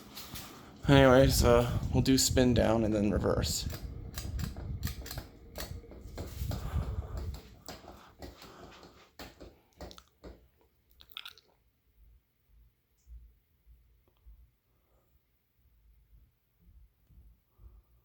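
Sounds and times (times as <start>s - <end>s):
ceiling fan low rumble: 0.0s - 8.2s, 12.0s - 18.0s
fan clicking: 0.0s - 10.3s.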